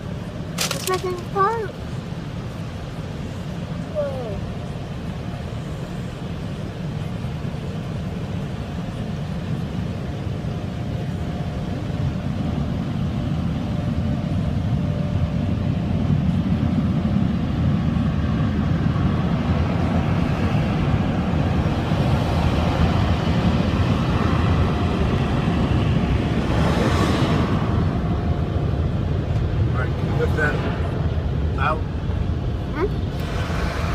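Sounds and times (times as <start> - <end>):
car wash machinery rushing: 0.0 - 9.7, 18.9 - 33.9
hiss: 33.2 - 33.9.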